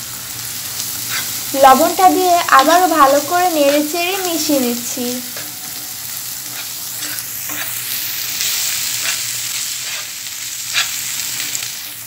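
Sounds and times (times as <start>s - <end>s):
onions sizzling in oil: 0.0s - 12.0s
spatula scraping a pan: 0.8s - 1.5s, 3.6s - 12.0s.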